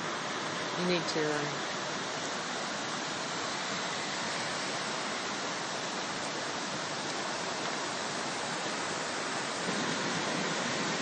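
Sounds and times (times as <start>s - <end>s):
rushing floodwater: 0.0s - 11.0s.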